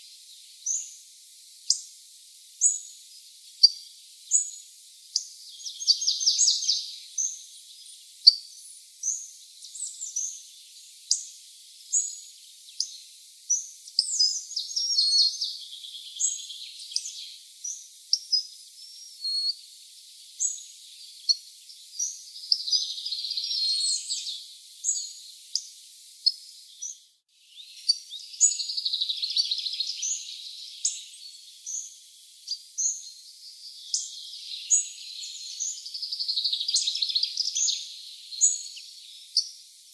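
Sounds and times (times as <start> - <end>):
bird twittering: 18.1 - 19.6, 27.5 - 31.8.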